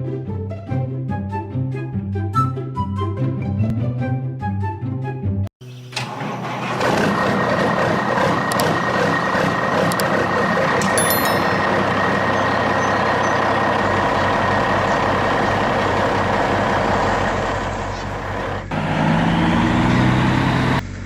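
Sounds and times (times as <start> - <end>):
truck engine running: 5.6 - 21.0
sharp clicks: 8.4 - 8.8, 9.8 - 11.6.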